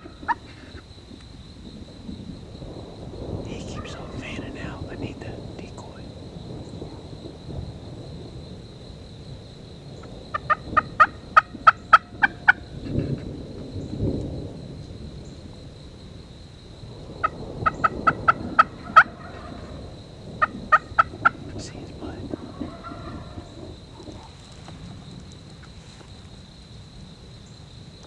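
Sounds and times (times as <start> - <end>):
turkey calling: 0.0 - 0.8, 3.6 - 4.7, 17.2 - 19.8, 22.3 - 24.4
low rumble: 3.2 - 6.8.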